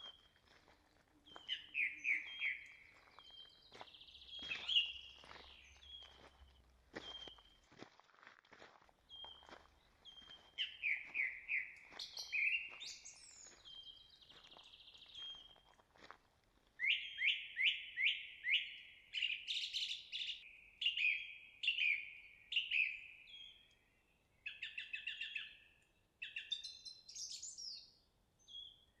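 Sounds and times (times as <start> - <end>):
songbirds singing: 0.0 - 7.7, 9.0 - 15.7, 16.8 - 29.0
footsteps on a trail: 0.0 - 16.8.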